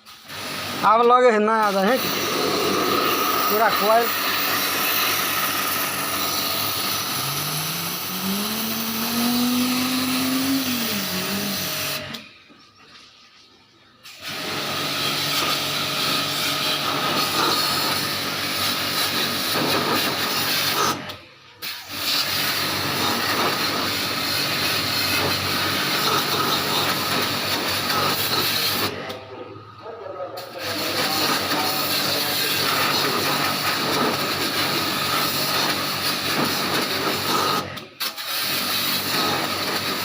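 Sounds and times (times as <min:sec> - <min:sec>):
water spray jet hissing: 0:01.7 - 0:12.1, 0:21.6 - 0:29.0, 0:30.4 - 0:40.0.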